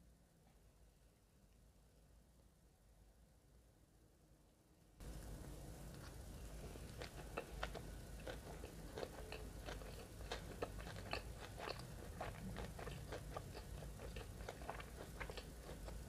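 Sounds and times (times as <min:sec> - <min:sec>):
chewing with mouth clicks: 0:05.9 - 0:16.0.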